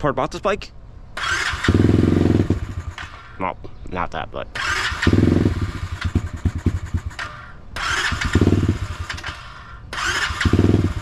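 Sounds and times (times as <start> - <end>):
electric starter whirring: 1.2 - 3.4, 4.6 - 11.0
engine firing in pops: 1.2 - 3.4, 5.9 - 9.4.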